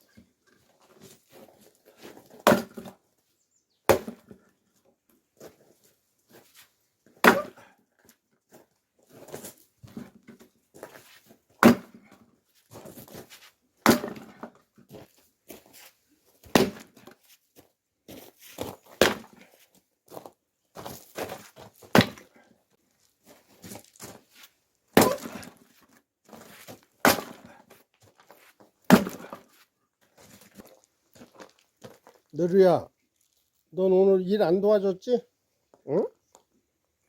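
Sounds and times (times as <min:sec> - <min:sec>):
axe chopping wood: 0:02.4 - 0:02.9, 0:03.9 - 0:04.4, 0:07.2 - 0:07.7, 0:11.6 - 0:12.1, 0:13.8 - 0:14.5, 0:16.4 - 0:17.2, 0:19.0 - 0:19.4, 0:21.9 - 0:22.3, 0:25.0 - 0:25.6, 0:27.0 - 0:27.6, 0:28.9 - 0:29.5.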